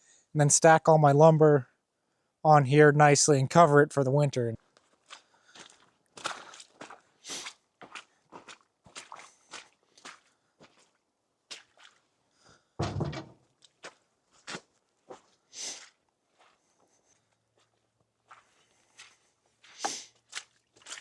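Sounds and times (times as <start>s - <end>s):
heavy thump: 12.8s - 13.4s
crunchy footsteps: 12.9s - 21.0s.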